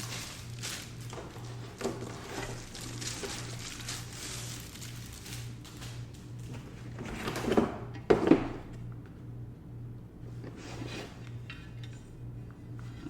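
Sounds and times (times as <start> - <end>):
packaging rustling: 0.0 - 6.7.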